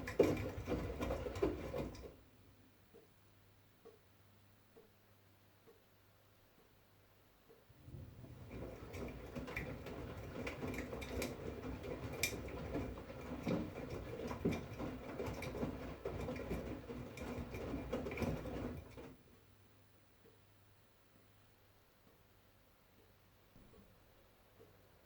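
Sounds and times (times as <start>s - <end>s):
wet laundry tumbling in drum: 0.0s - 2.2s, 7.7s - 19.4s
washing machine motor hum: 0.0s - 2.4s, 7.7s - 19.5s.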